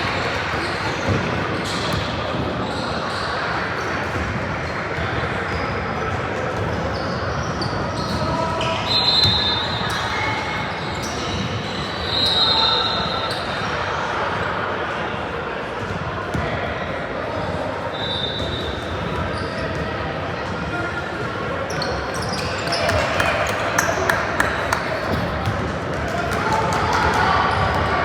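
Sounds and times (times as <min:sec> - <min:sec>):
sneaker squeaks: 0:00.0 - 0:05.8, 0:06.6 - 0:13.7, 0:17.8 - 0:20.8, 0:21.5 - 0:26.0
chatter of people: 0:00.0 - 0:28.0.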